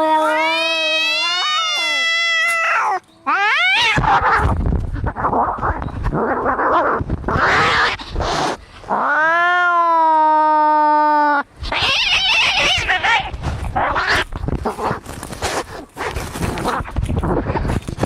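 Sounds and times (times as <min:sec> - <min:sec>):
cat yowling: 0:00.0 - 0:04.5, 0:09.0 - 0:14.3
cats hissing and screeching: 0:00.0 - 0:17.7.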